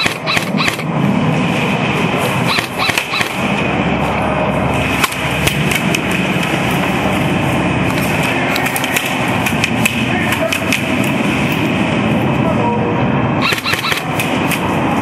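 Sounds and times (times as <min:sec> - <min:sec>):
airsoft gun shots: 0:00.0 - 0:00.9, 0:02.5 - 0:03.4, 0:13.4 - 0:14.6
loud rushing noise: 0:00.0 - 0:15.0.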